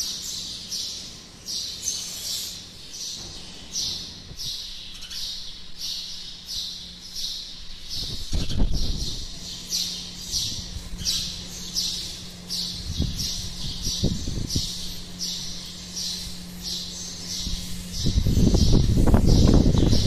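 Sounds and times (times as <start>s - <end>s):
bird's high scratchy call: 1.8s - 2.7s.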